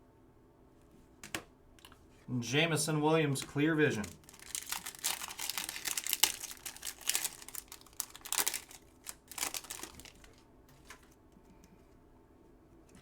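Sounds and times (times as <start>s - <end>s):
cards being handled: 3.3s - 11.2s
wrapper crinkling: 4.0s - 11.2s.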